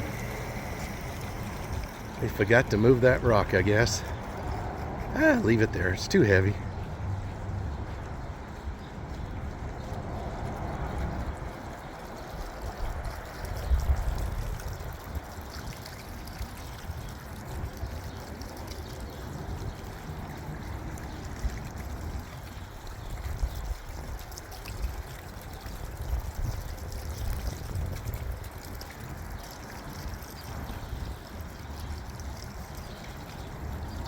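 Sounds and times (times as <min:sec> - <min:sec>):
wind buffeting microphone: 0:21.6 - 0:29.3.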